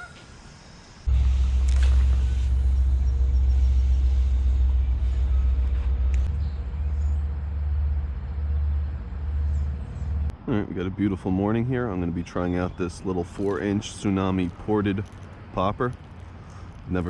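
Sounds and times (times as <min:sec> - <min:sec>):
steady low rumble: 0:01.0 - 0:17.0.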